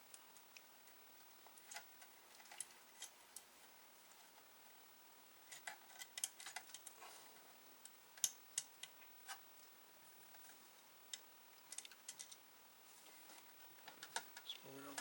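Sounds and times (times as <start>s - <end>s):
small parts clicking and tapping: 0.1s - 3.5s, 5.5s - 7.0s, 7.8s - 9.7s, 10.3s - 12.4s, 13.3s - 15.0s.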